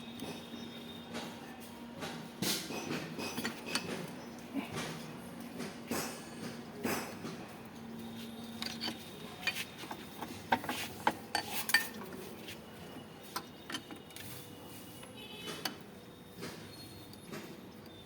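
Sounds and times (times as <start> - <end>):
metal parts and tools clinking: 3.2 - 4.0, 8.4 - 12.2.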